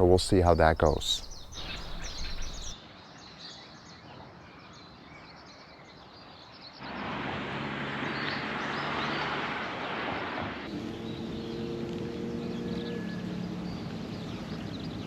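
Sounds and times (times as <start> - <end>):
faint low hum: 0.0 - 2.8
small birds chirping: 0.0 - 2.8.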